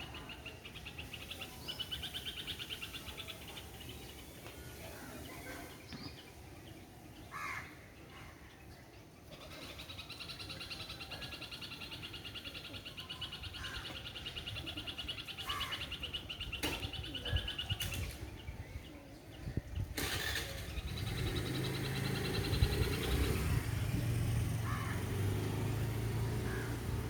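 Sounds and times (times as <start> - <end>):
birds calling: 0.0 - 27.0
vehicle engine humming: 20.0 - 27.0.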